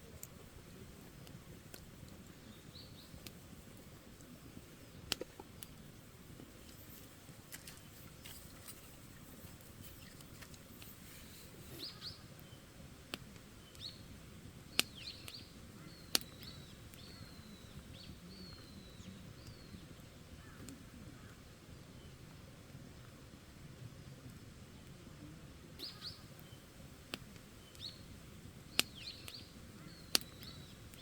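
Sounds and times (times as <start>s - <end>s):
fire pops: 0.0s - 18.7s, 25.7s - 31.0s
campfire crackling: 0.0s - 31.0s
small birds chirping: 0.0s - 31.0s.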